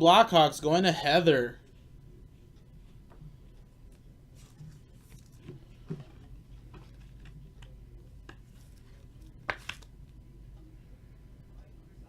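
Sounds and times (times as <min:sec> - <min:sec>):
low steady hum: 0:00.0 - 0:12.0
cards clicking and tapping: 0:05.1 - 0:09.9.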